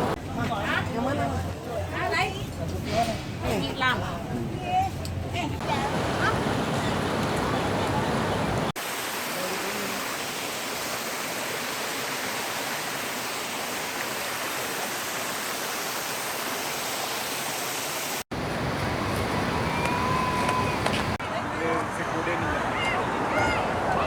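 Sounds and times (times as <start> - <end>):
water rushing: 5.6 - 24.0.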